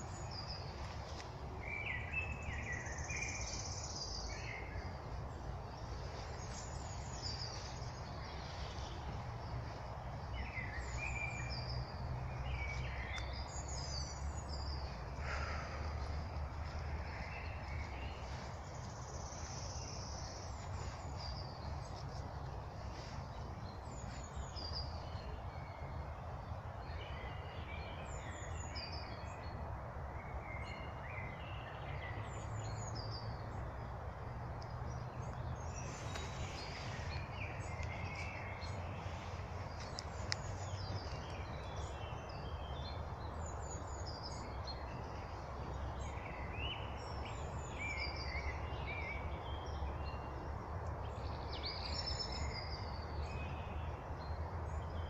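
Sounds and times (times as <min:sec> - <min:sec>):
songbirds singing and chirping: 0:00.0 - 0:55.0.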